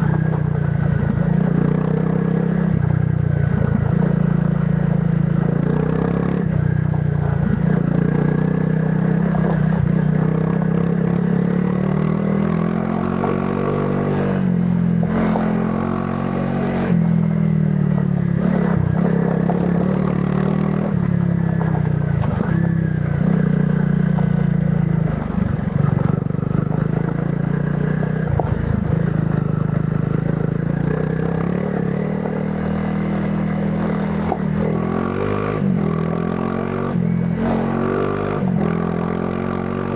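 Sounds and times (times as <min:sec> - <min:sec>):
motorcycle engine: 0:00.0 - 0:39.9
motorcycle clattering over rough ground: 0:25.1 - 0:30.9.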